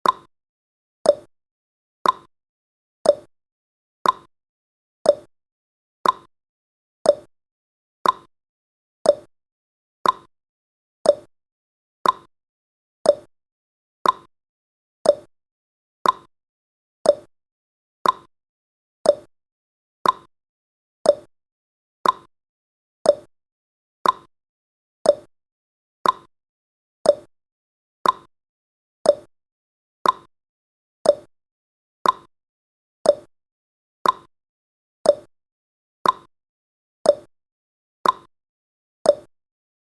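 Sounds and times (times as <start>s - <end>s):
clock ticking: 2.0s - 2.3s, 4.0s - 4.3s, 6.0s - 6.3s, 8.0s - 8.3s, 10.0s - 10.3s, 12.0s - 12.3s, 14.0s - 14.3s, 15.1s - 15.3s, 16.0s - 16.3s, 18.0s - 18.3s, 20.0s - 20.3s, 21.1s - 21.3s, 22.0s - 22.3s, 24.0s - 24.3s, 26.0s - 26.3s, 28.0s - 28.3s, 29.1s - 29.3s, 30.0s - 30.3s, 31.1s - 31.3s, 32.0s - 32.3s, 33.1s - 33.3s, 34.0s - 34.3s, 35.1s - 35.3s, 36.0s - 36.3s, 38.0s - 38.3s, 39.1s - 39.3s.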